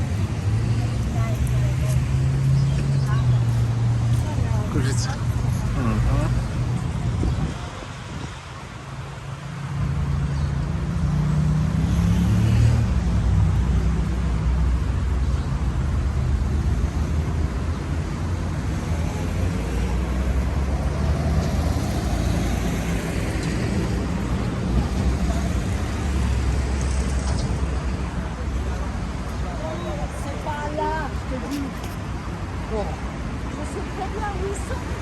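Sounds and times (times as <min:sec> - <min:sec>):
traffic rumble: 0:00.0 - 0:35.0
passing vehicle engine: 0:09.6 - 0:35.0.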